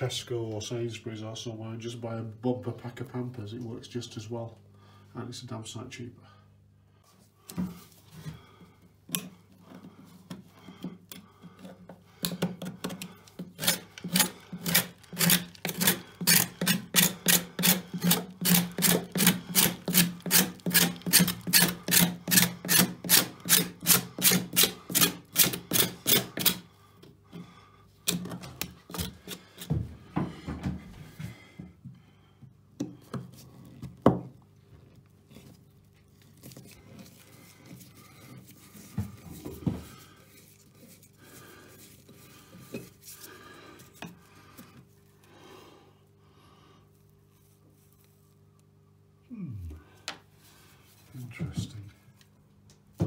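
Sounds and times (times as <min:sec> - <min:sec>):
hand tool scraping: 0:09.1 - 0:26.7, 0:28.1 - 0:29.8.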